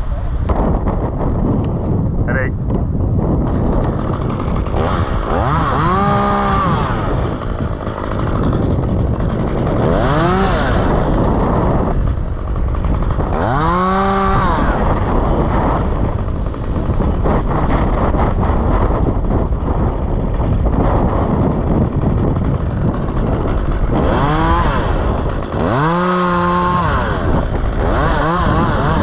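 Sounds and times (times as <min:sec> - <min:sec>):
chainsaw revving: 0:03.4 - 0:29.0.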